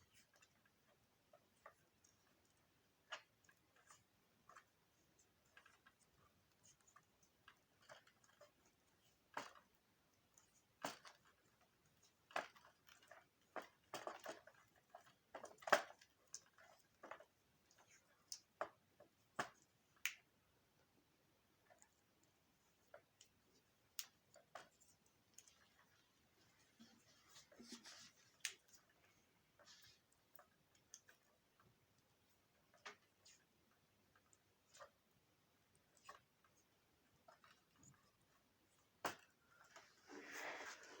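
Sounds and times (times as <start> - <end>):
small parts clicking and tapping: 0.0 - 20.5.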